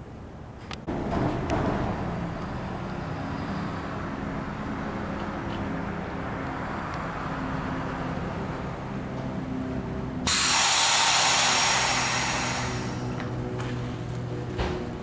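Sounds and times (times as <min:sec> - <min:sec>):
train humming: 0:08.1 - 0:15.0
compressed air hissing: 0:10.3 - 0:13.3.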